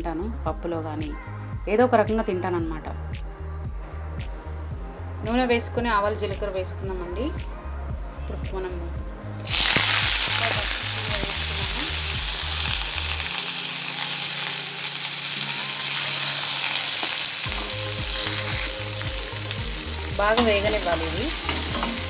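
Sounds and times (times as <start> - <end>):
seeds sizzling in hot oil: 9.4 - 22.0.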